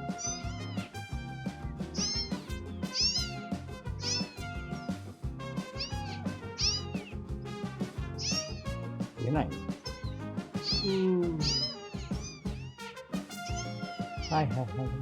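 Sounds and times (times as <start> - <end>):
background music: 0.0 - 15.0
kitten mewing: 2.9 - 3.4, 8.2 - 8.6, 10.6 - 12.8.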